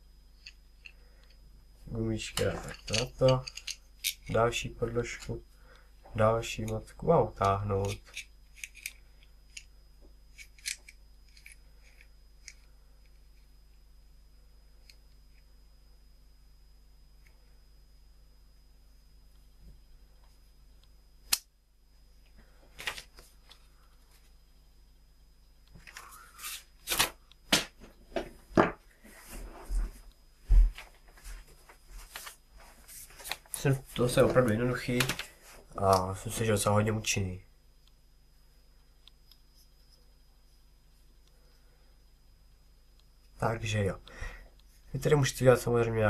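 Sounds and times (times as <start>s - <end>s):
metal nut and washers clicking: 2.6s - 4.3s.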